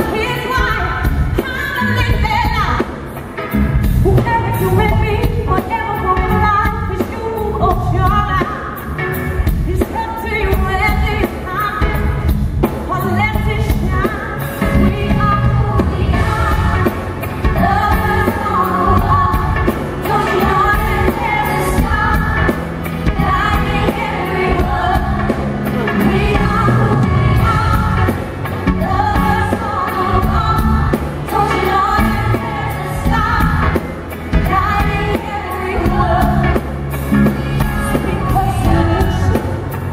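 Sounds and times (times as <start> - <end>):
soul band playing: 0.0 - 39.9
woman singing lead: 0.0 - 39.9
backing vocals: 13.1 - 39.9.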